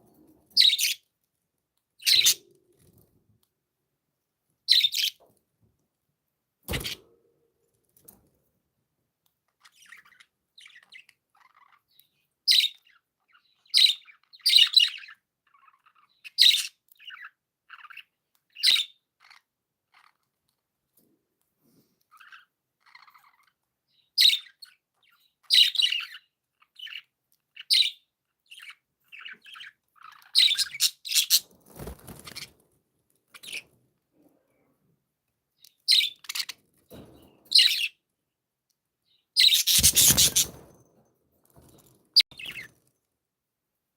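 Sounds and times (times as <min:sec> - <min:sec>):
budgerigars chirping: 0:28.6 - 0:31.4, 0:39.4 - 0:40.6.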